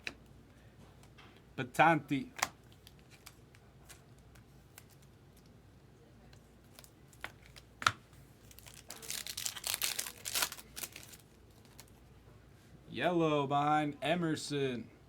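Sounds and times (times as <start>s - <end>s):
wrapper crinkling as torn open: 8.4s - 12.0s.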